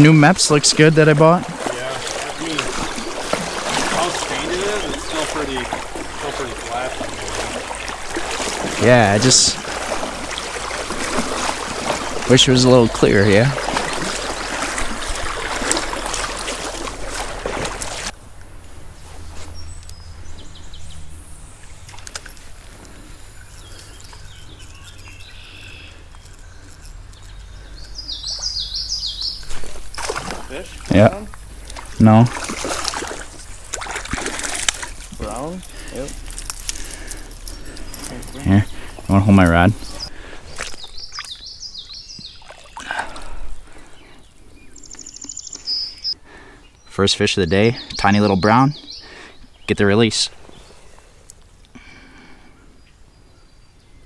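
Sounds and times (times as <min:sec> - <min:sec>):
water splashing: 0:00.0 - 0:18.2, 0:29.2 - 0:41.3
stream water running: 0:00.0 - 0:52.5
songbird chirping: 0:00.0 - 0:54.0.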